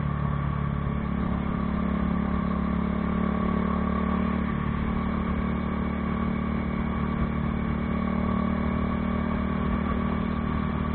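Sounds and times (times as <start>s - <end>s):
motorcycle engine running steadily: 0.0s - 10.9s.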